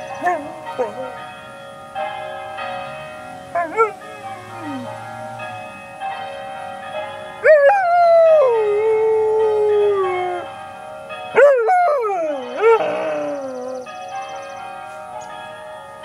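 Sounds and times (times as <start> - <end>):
church bells ringing: 0.0 - 16.0
puppy howling: 3.5 - 5.0, 7.4 - 10.5, 11.4 - 13.9.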